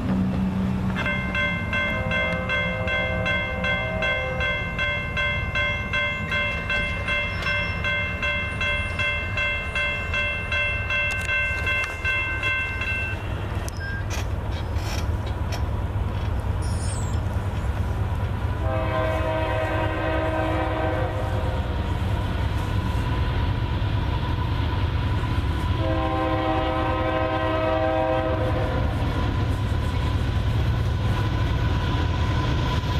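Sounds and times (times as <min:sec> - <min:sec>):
freight train rumble: 0:00.0 - 0:32.9
crossing bell ringing: 0:00.9 - 0:14.2
locomotive air horn: 0:01.8 - 0:04.5, 0:18.6 - 0:21.8, 0:25.8 - 0:29.0.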